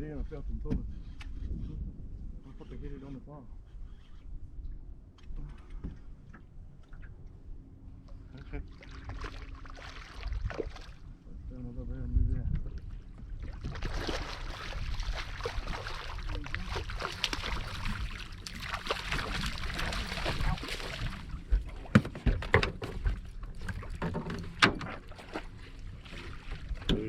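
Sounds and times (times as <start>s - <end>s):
boat motor rumble: 4.3s - 27.0s
water and wind rushing: 4.4s - 27.0s
knocks against boat: 21.4s - 25.4s.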